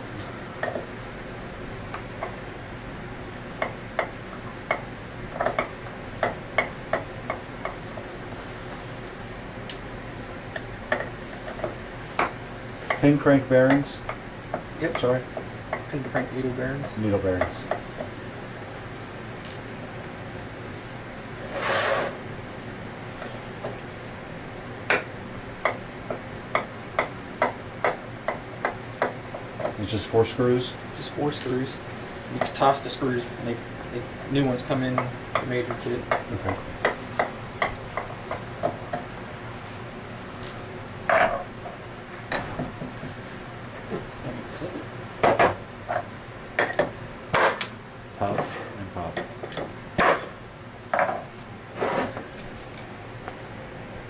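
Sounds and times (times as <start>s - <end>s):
short scraping hiss: 21.5s - 22.2s.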